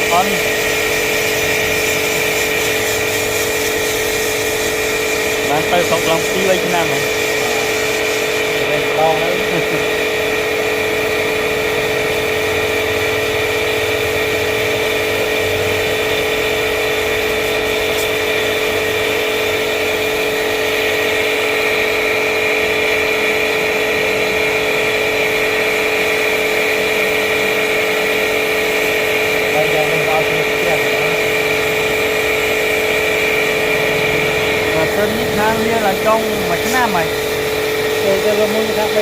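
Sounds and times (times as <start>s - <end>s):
machine motor humming with whine: 0.0s - 39.0s.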